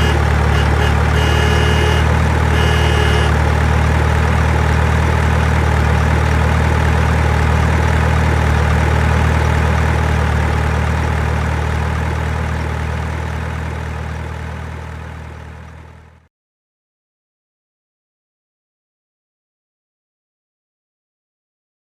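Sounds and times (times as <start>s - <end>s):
truck engine idling: 0.0s - 16.2s.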